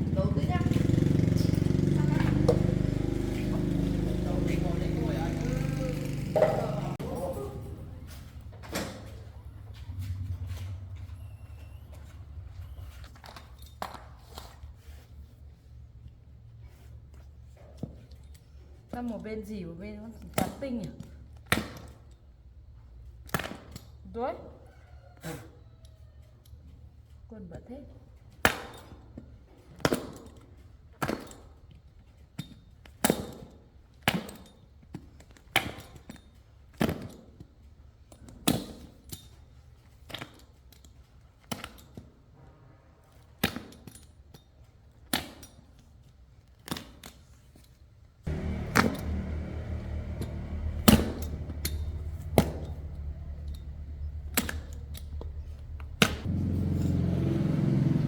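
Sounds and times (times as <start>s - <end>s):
steady low hum: 48.3s - 58.0s.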